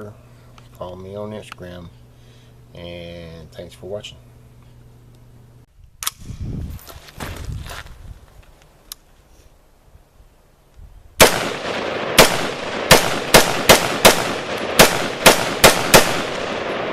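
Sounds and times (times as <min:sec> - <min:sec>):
sharp gunshots: 0:11.2 - 0:16.9.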